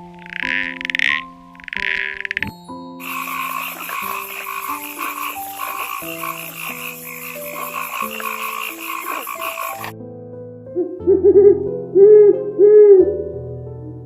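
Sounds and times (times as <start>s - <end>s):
rapidly pulsing animal call: 0.0s - 9.9s.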